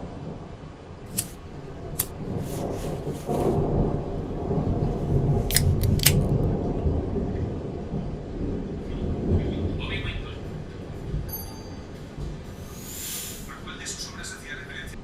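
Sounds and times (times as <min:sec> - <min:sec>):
thunder rumbling: 0:01.1 - 0:15.0
sharp clicks: 0:05.5 - 0:06.4.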